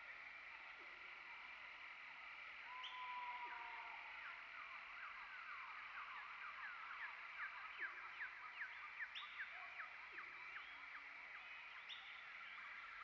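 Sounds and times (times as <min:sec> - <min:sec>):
steady high background hiss: 0:00.0 - 0:13.0
long whistled bird note: 0:02.6 - 0:04.3.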